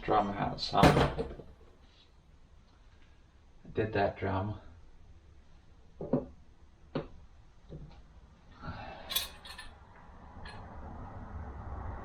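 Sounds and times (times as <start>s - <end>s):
metal scrape with clink: 9.0s - 9.8s.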